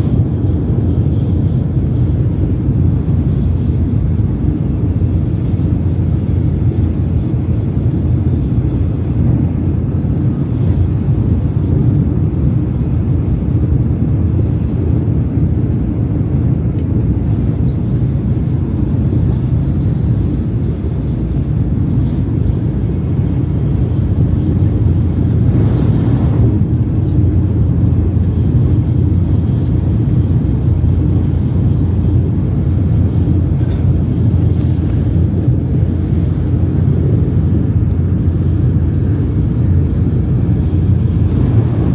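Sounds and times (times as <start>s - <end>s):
bullet train rumbling at speed: 0.0s - 41.9s.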